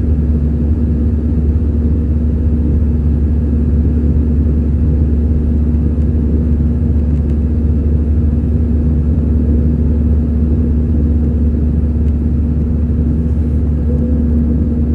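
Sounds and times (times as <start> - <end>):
aircraft cabin engine rumble: 0.0 - 14.9
steady hum: 10.3 - 14.9.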